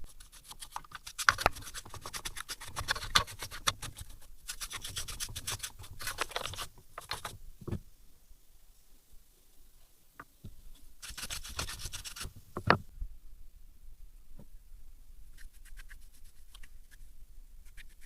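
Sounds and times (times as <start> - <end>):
hands and tools scraping engine parts: 0.0 - 7.4, 11.0 - 12.3.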